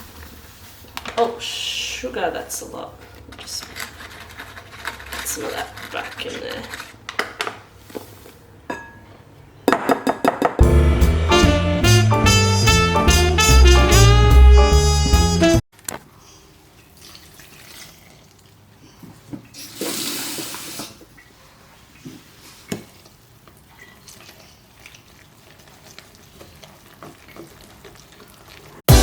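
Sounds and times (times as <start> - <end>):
kitchen things knocking: 9.7 - 10.7.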